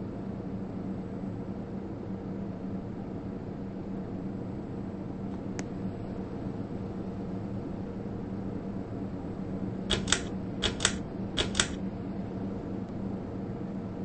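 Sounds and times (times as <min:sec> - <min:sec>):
ceiling fan humming: 0:00.0 - 0:14.0
sharp clicks: 0:09.9 - 0:11.8.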